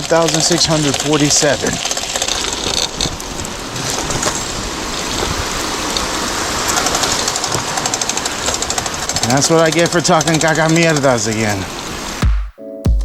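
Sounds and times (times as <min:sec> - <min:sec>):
bicycle tyre rushing noise: 0:00.0 - 0:12.2
bike rattling over bumps: 0:00.0 - 0:12.2.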